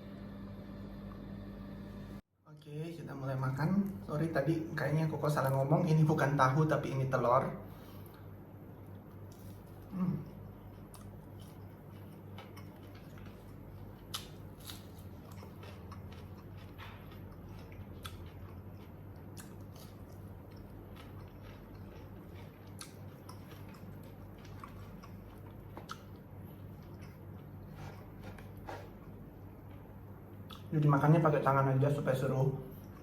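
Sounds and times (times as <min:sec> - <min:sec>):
steady low hum: 0:00.0 - 0:33.0
person chewing food: 0:07.9 - 0:30.7, 0:32.7 - 0:33.0.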